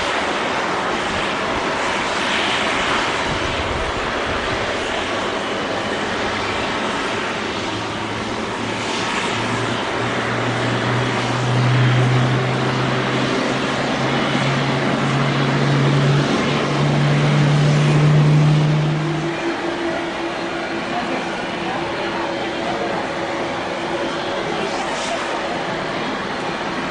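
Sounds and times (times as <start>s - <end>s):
jet engines running: 0.0s - 26.9s.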